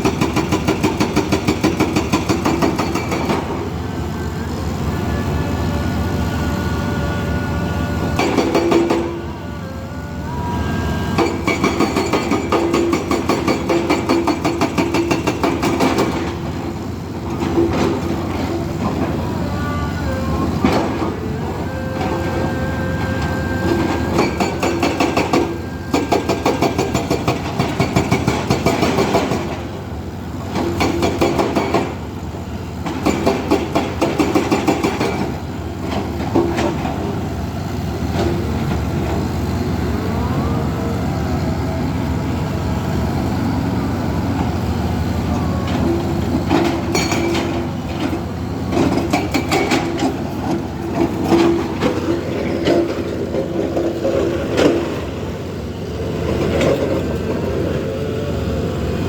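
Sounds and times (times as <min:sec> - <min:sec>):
diesel machinery engine under load: 0:00.0 - 0:59.0
faint whining tones: 0:18.4 - 0:26.1.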